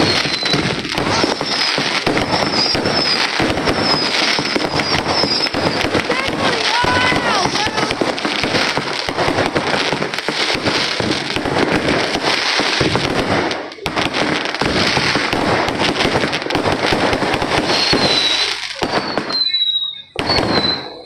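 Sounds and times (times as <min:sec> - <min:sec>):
high firework whistle: 0:00.0 - 0:09.6, 0:16.8 - 0:21.0
firecrackers crackling: 0:00.0 - 0:21.0.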